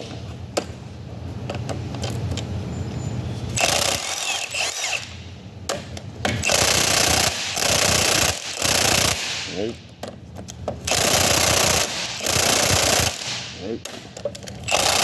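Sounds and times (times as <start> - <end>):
impact wrench rattling: 3.6 - 5.2, 6.2 - 9.7, 10.7 - 15.0.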